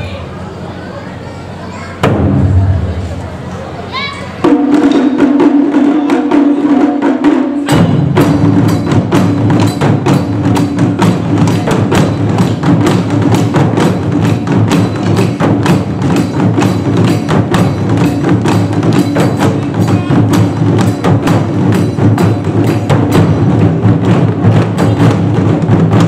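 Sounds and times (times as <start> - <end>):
taiko drum ensemble playing: 2.0 - 3.4, 4.4 - 26.0.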